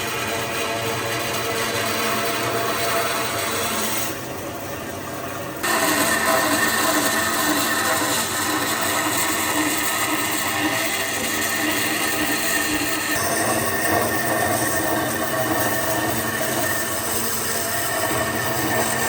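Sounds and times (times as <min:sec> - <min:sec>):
power tool whining on wood: 0:05.6 - 0:19.0.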